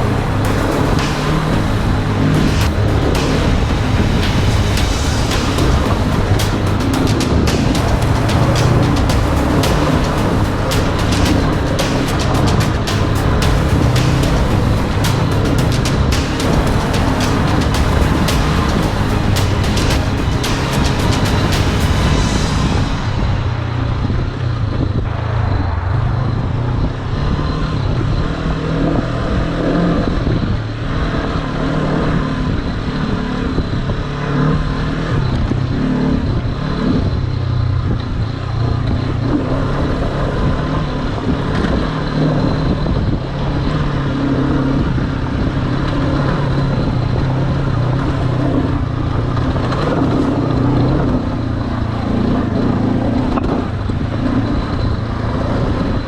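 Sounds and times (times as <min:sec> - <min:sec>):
motorcycle engine revving: 0:00.0 - 0:56.0
noisy rumble: 0:00.0 - 0:56.0.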